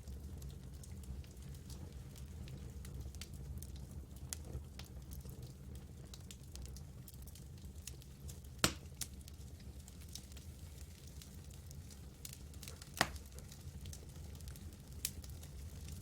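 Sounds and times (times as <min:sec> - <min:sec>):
fire rumbling: 0:00.0 - 0:16.0
wood crackling: 0:07.8 - 0:16.0.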